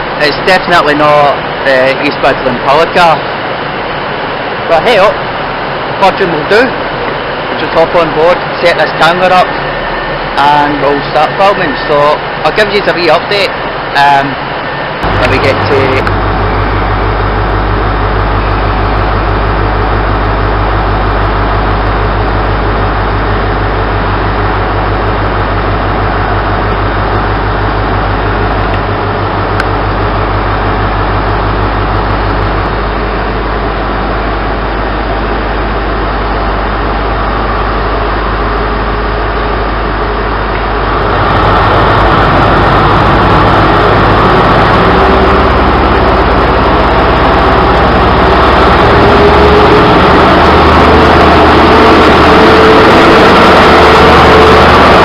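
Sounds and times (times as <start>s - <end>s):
train engine hum: 0.0s - 55.0s
train carriage noise: 13.5s - 55.0s.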